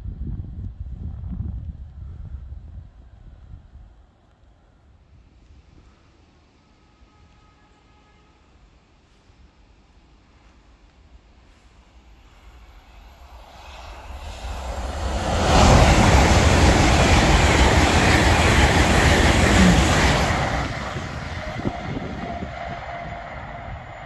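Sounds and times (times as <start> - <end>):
train passing at speed: 5.0 - 24.0.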